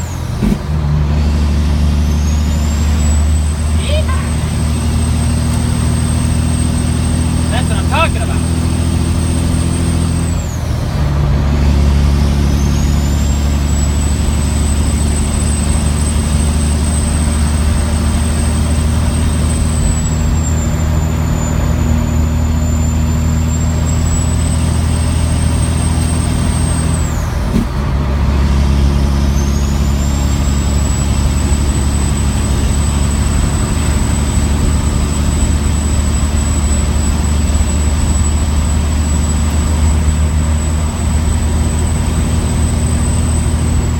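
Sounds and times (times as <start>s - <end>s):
diesel truck engine pulling hard: 0.0s - 43.9s
high turbo whistle: 2.0s - 10.4s.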